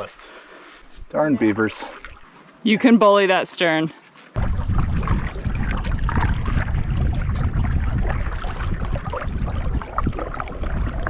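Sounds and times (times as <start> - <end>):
water splashing around canoe: 1.7 - 2.6, 4.0 - 11.0
low rumble: 4.4 - 11.0.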